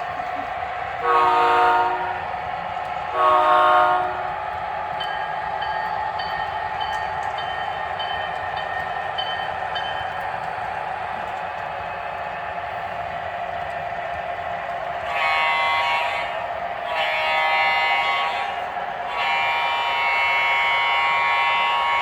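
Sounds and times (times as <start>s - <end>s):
model train running: 0.0s - 22.0s
model train horn chord: 1.0s - 2.2s, 3.1s - 4.3s, 15.1s - 22.0s.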